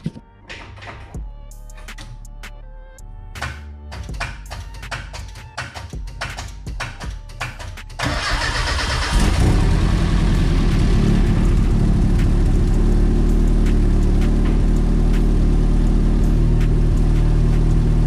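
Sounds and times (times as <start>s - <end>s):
car engine idling: 8.1s - 18.0s.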